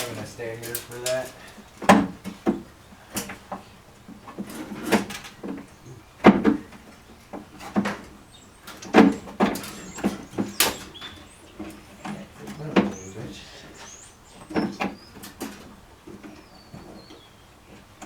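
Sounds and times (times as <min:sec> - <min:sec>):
hand tools knocking on metal: 0:06.2 - 0:13.9.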